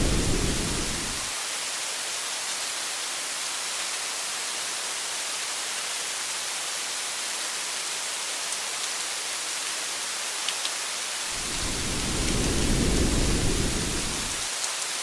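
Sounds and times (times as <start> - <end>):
thunder rolling: 0.0 - 1.3, 11.3 - 14.5
rain hiss on a car: 0.0 - 15.0.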